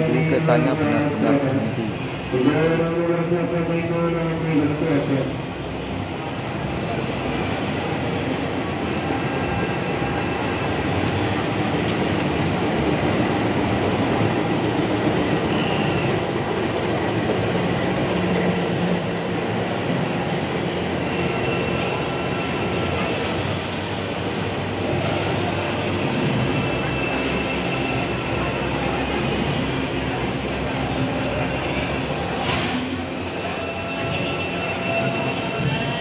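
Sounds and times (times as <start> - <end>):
train locomotive rumble: 0.0 - 36.0
train wheels on rails: 0.5 - 36.0
faint high squeal: 21.1 - 24.1.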